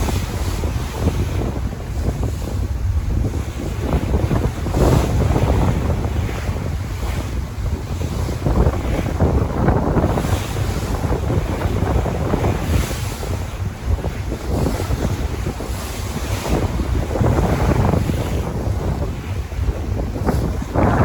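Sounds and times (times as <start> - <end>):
sea waves washing: 0.0 - 21.0
wind buffeting microphone: 0.0 - 21.0.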